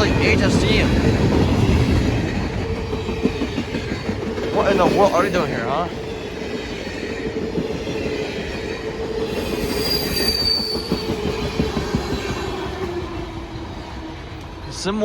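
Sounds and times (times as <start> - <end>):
train wheel squeal: 1.4 - 13.1.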